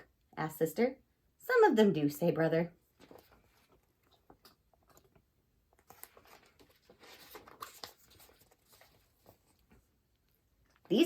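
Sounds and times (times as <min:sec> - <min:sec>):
paper pages turning: 0:02.9 - 0:10.9.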